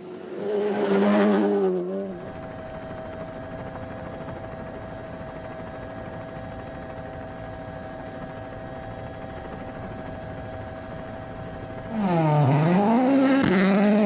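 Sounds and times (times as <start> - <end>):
constant whine: 0.0 - 14.0
distant mechanical drone: 10.7 - 14.0.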